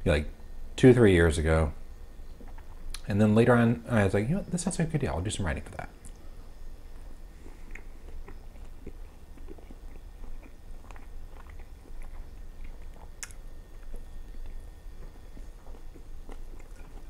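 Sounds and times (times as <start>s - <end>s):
chewing fried food: 2.3s - 3.0s, 6.1s - 17.0s.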